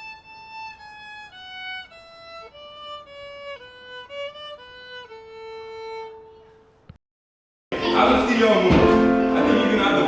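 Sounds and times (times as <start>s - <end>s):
solo violin melody: 0.0s - 6.6s.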